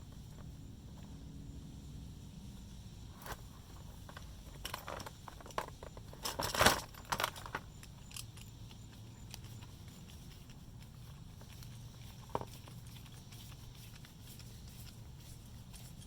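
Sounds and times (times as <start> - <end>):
steady low hum: 0.0 - 16.0
tools clicking and rattling: 4.0 - 10.6.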